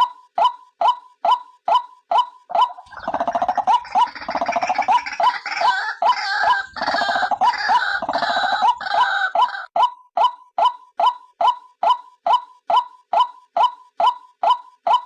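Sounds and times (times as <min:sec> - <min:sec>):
bird calling with gurgling chatter: 0:02.6 - 0:09.2.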